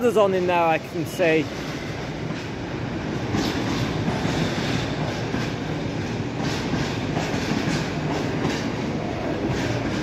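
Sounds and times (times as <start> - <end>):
train wheels rumbling on rails: 0.0 - 10.0
wheels clacking over rail joints: 2.2 - 10.0.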